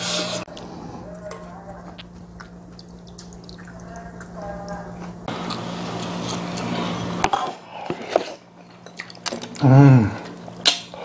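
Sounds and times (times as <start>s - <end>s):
chewing and mouth sounds: 0.5s - 5.6s
person humming mm: 9.6s - 10.3s.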